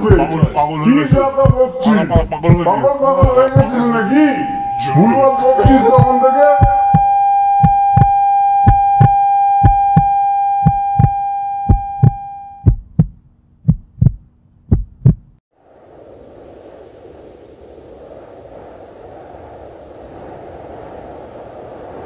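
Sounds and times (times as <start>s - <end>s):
heartbeat thumps: 0.0s - 3.8s, 4.6s - 15.4s
faint wind: 0.0s - 22.0s
high ringing tone: 3.3s - 12.8s.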